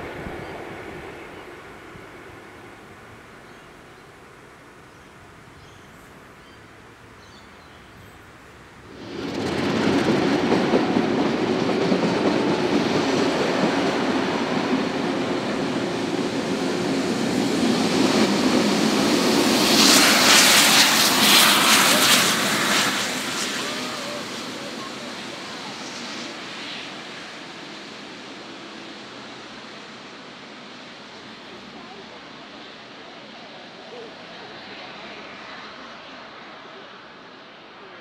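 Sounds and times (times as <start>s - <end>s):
loud hissing rush: 0.0s - 5.0s, 8.3s - 35.4s
train wheels rumbling on rails: 8.7s - 26.5s.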